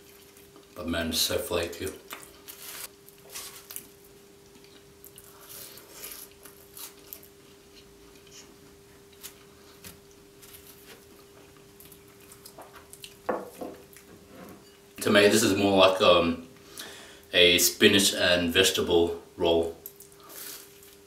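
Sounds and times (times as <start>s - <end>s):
faint steady hum: 0.0s - 21.0s
pastry crunching while chewing: 1.8s - 13.3s.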